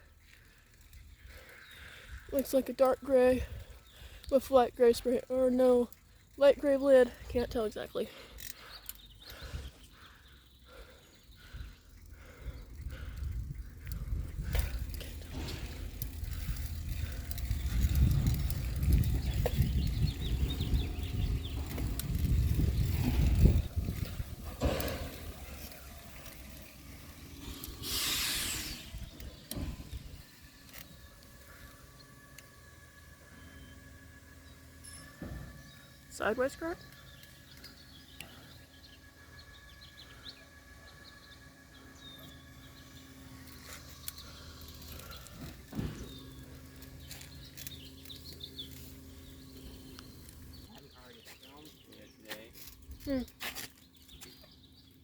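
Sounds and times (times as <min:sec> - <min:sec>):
birds chirping: 0:00.0 - 0:55.0
wind buffeting microphone: 0:11.4 - 0:31.4
small clicks: 0:11.6 - 0:33.1, 0:42.2 - 0:50.8.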